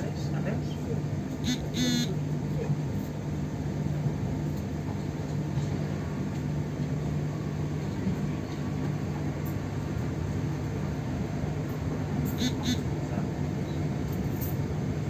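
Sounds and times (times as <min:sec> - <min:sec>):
train rumbling inside carriage: 0:00.0 - 0:15.0.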